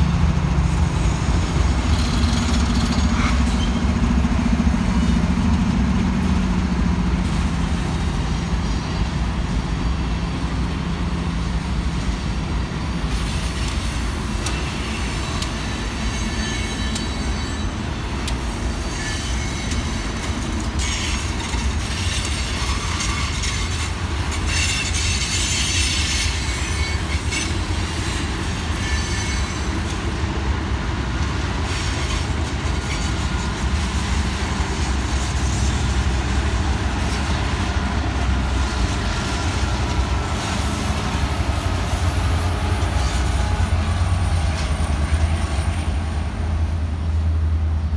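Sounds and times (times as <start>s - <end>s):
diesel locomotive engine hum: 0.0s - 47.9s
train wheels rumbling on rail: 0.0s - 47.9s
wheels screeching: 13.2s - 30.2s.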